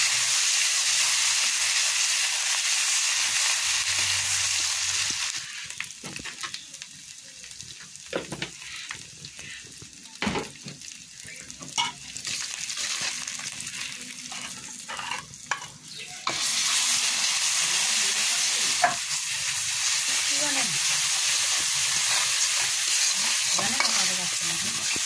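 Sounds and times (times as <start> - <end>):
spices sizzling in oil: 0.0 - 25.0
metal spatula scraping a wok: 14.2 - 16.8, 21.0 - 25.0.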